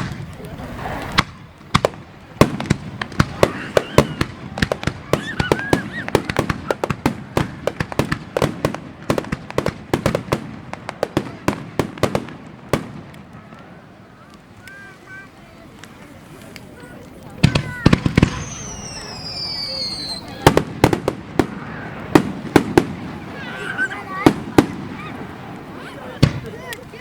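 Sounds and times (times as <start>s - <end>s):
faint voices: 0.0s - 27.0s
fireworks cracking and banging: 0.0s - 27.0s.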